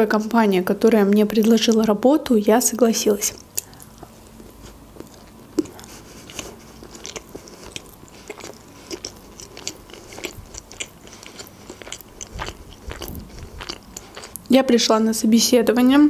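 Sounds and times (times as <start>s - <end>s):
chewing with wet smacks: 3.3s - 14.5s.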